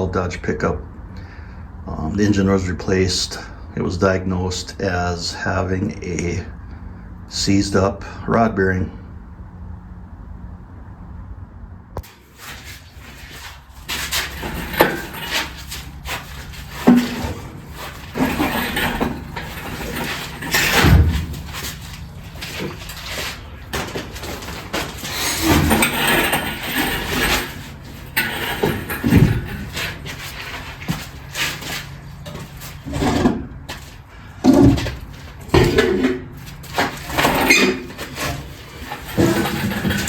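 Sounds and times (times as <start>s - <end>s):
metal clanks and scrapes of tools: 12.0s - 40.0s.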